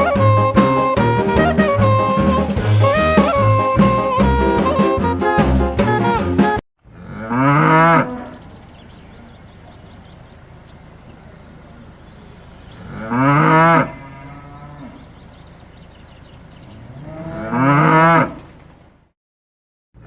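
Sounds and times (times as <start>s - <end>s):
cow mooing: 6.9s - 8.5s, 12.7s - 15.1s, 16.7s - 18.4s.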